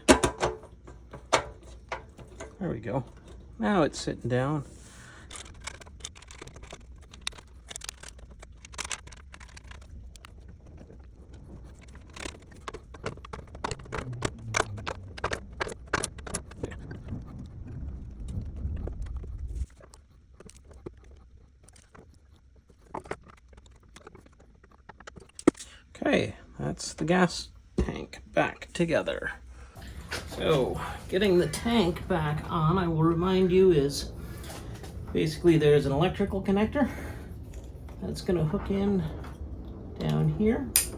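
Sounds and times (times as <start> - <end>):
low steady hum: 0.0 - 20.7, 25.3 - 40.9
tools and metal parts clicking: 5.1 - 10.8.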